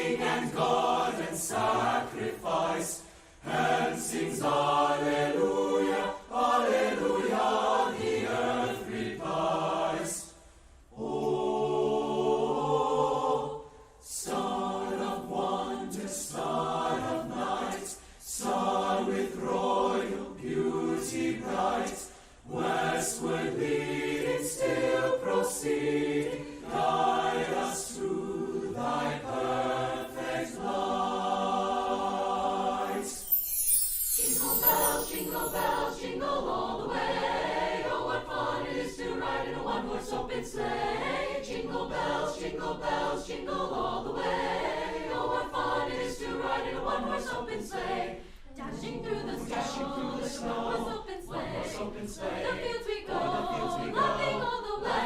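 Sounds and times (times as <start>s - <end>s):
choir singing: 0.0s - 55.0s
bright high swish: 32.8s - 36.0s.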